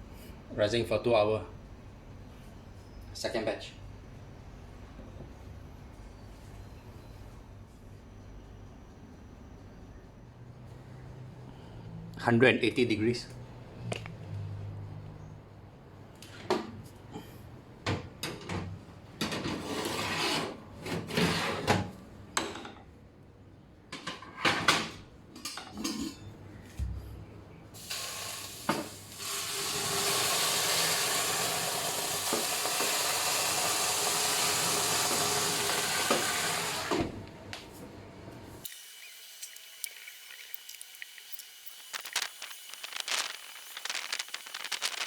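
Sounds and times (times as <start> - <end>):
steady hiss: 39.0 - 45.0.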